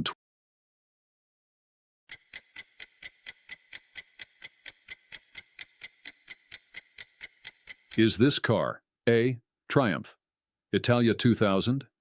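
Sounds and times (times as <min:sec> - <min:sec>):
clock ticking: 0:02.1 - 0:08.2.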